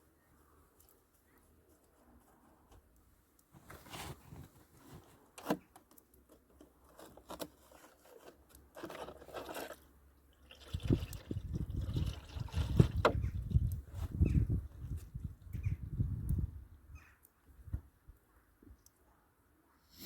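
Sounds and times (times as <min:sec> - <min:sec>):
oil pouring out: 0:08.9 - 0:13.2.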